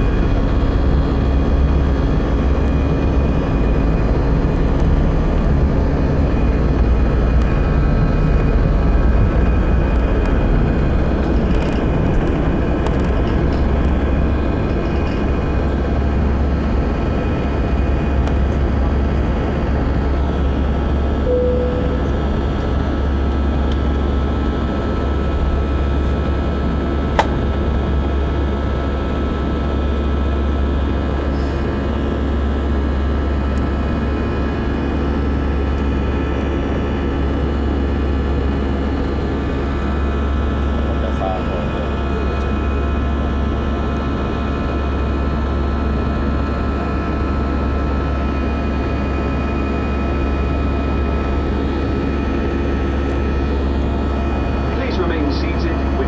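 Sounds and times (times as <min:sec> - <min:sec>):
deep hum: 0:00.0 - 0:25.9
jet engines rumbling in cabin: 0:00.0 - 0:56.0.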